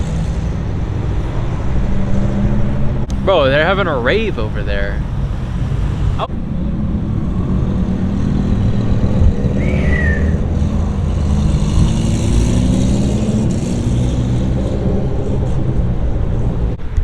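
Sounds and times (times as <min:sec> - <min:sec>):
car engine accelerating: 0:00.0 - 0:17.0
high squeal: 0:09.5 - 0:11.0.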